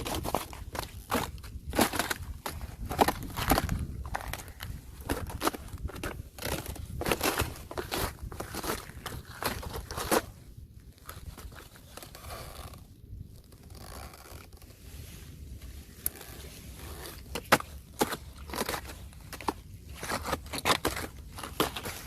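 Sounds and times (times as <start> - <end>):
ice cracking: 0.0 - 10.3, 16.9 - 22.0
ice scraping: 0.0 - 10.4, 13.5 - 22.0.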